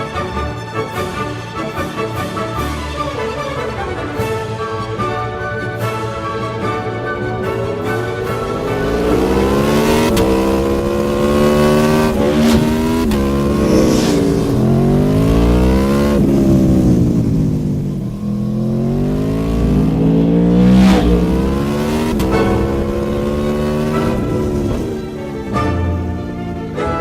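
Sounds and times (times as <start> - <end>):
motorcycle engine accelerating: 7.4 - 26.5.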